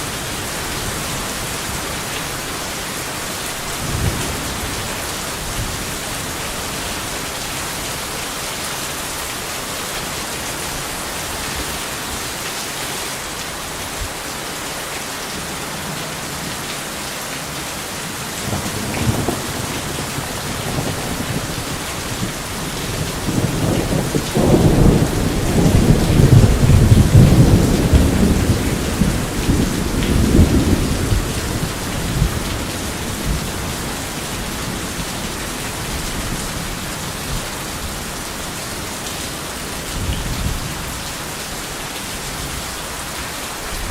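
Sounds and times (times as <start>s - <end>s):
heavy rain: 0.0s - 43.9s
thunder rolling: 18.4s - 33.5s.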